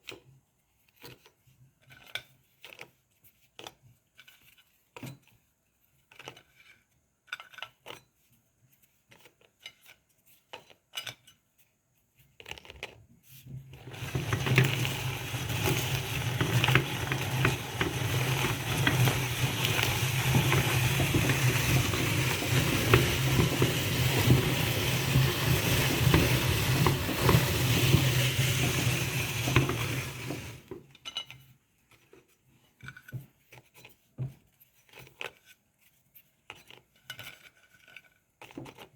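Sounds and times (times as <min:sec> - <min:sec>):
meat grinder crunching cookies: 0:12.4 - 0:30.9.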